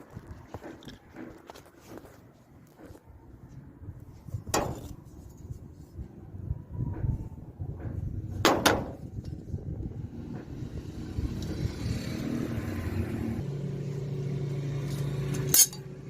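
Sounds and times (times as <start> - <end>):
metal clanks: 14.9 - 15.9.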